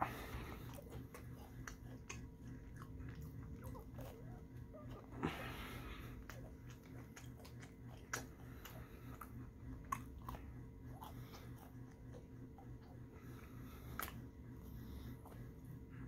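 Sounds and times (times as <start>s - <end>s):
wet chewing and mouth smacks: 0.0s - 14.6s
steady low hum: 0.0s - 16.0s.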